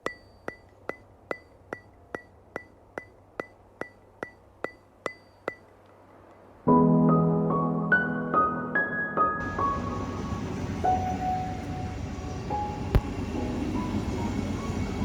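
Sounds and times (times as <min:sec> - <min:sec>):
sharp ringing ticks: 0:00.0 - 0:06.4
soft keyboard music: 0:06.7 - 0:15.0.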